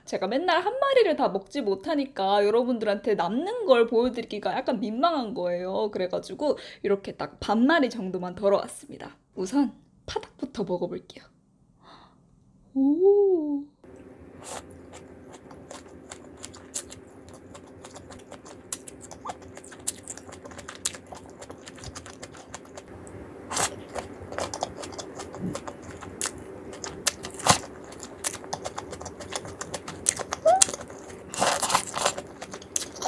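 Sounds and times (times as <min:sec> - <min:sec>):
faint steady hum: 0:00.0 - 0:33.0
crunching fried chicken: 0:13.9 - 0:33.0.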